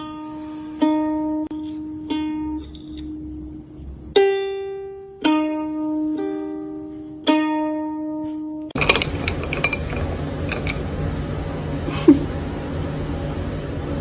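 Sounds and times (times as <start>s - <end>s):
slow plucked string notes: 0.0s - 9.4s
noisy clatter: 8.8s - 11.2s.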